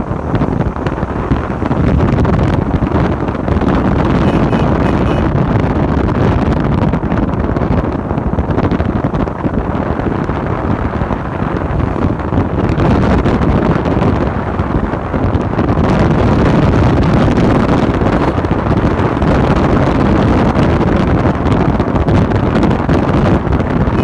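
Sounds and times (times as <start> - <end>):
wind buffeting microphone: 0.0 - 24.0
faint short beeps: 4.2 - 5.3.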